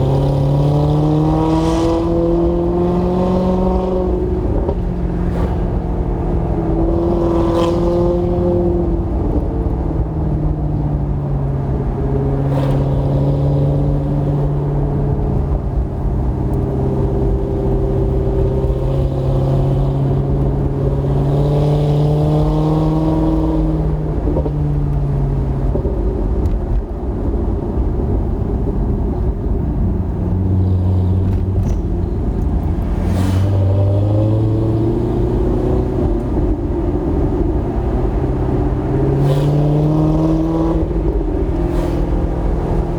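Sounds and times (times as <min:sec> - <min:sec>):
car engine running: 0:28.1 - 0:38.9.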